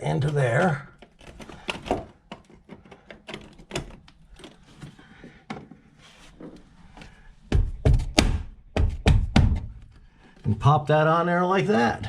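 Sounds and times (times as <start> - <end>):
loud knocks: 7.5 - 9.8.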